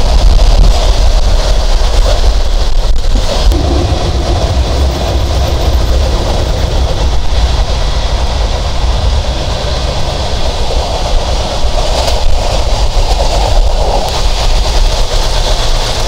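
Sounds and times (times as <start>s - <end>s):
rushing air: 0.0s - 16.0s
train wheels rumbling: 0.0s - 16.0s.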